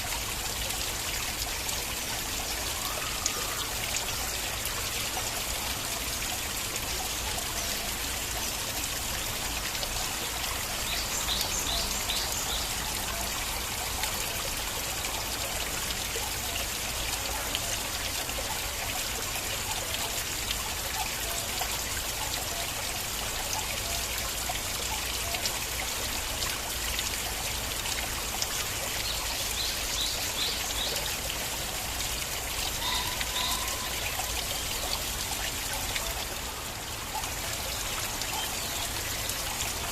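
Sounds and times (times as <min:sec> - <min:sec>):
stream water trickling: 0:00.0 - 0:39.9.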